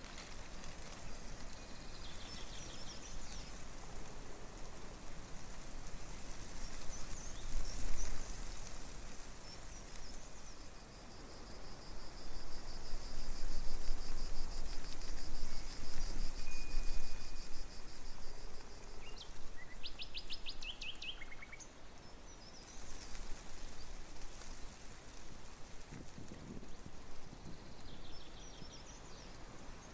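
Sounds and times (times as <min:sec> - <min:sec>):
insect pulsing trill: 0:13.4 - 0:21.6.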